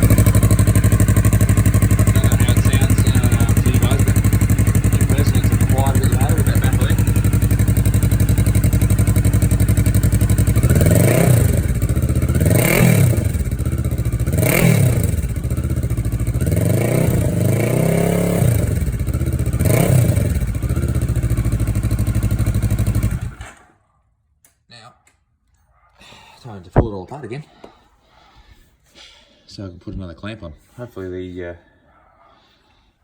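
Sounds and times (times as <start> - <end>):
motorcycle engine revving: 0.0 - 23.8.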